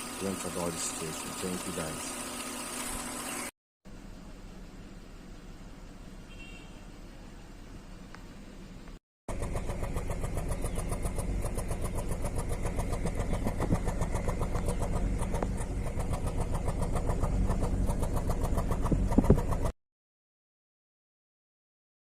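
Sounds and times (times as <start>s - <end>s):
car engine idling: 9.3s - 19.7s
engine knocks: 9.3s - 19.8s.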